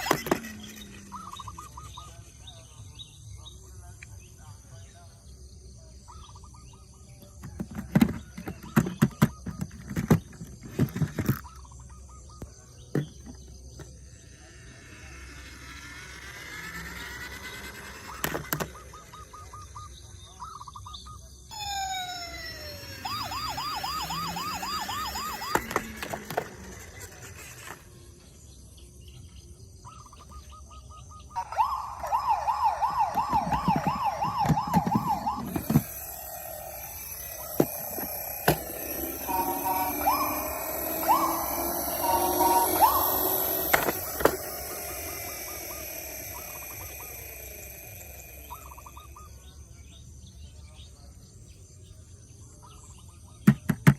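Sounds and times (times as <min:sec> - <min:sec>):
siren wailing: 0:00.0 - 0:01.8, 0:14.4 - 0:20.0, 0:21.5 - 0:27.8, 0:31.3 - 0:49.2
siren yelping: 0:00.0 - 0:02.0, 0:14.4 - 0:20.7, 0:21.5 - 0:27.8, 0:31.2 - 0:49.4.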